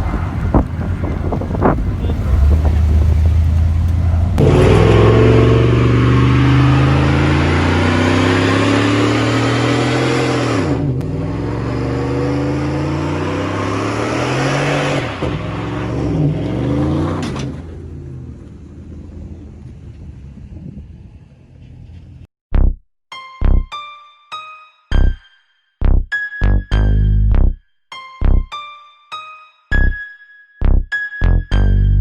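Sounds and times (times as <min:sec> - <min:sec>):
vehicle engine accelerating hard: 0:00.0 - 0:22.3.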